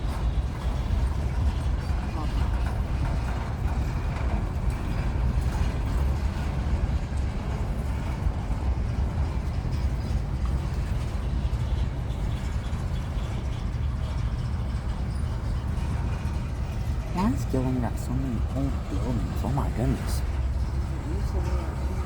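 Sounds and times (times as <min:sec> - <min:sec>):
train cars rumbling past: 0:00.0 - 0:22.0
wheels rattling on rails: 0:00.0 - 0:22.0.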